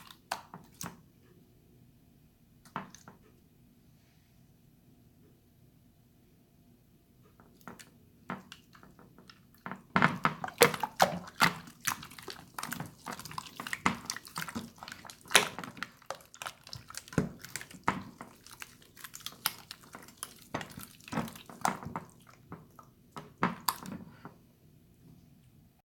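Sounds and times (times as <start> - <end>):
slime squelching: 0.0 - 1.1, 7.4 - 24.4.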